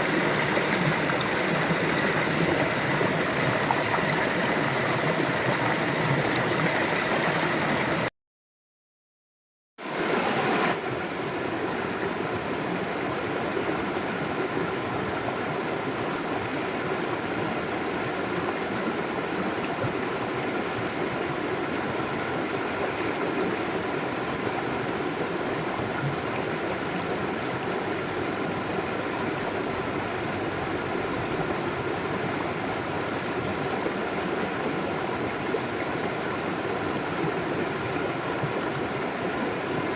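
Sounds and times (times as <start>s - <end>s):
river water rushing: 0.0s - 8.1s.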